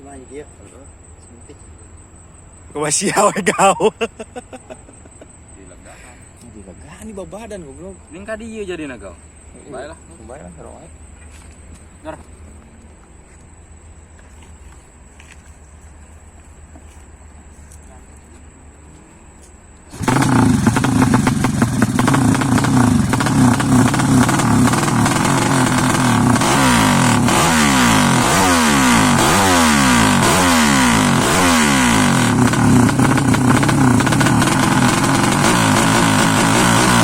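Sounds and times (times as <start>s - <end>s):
motorcycle engine revving: 19.9s - 37.0s.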